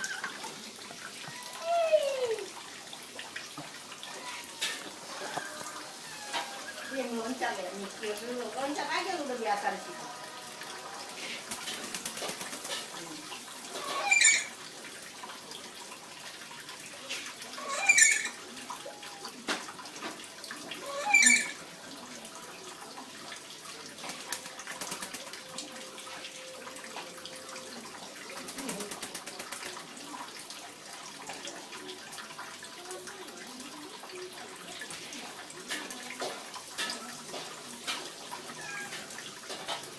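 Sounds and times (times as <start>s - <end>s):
running water: 0.0s - 39.9s
parrot squawking: 4.1s - 7.0s, 13.7s - 14.6s, 17.6s - 18.4s, 20.8s - 21.6s.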